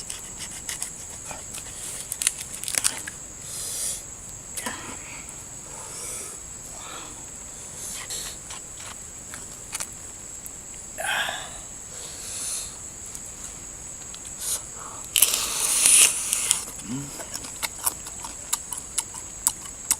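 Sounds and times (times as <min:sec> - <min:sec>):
person chewing: 0:15.1 - 0:19.9
small sharp mouth clicks: 0:15.1 - 0:19.9.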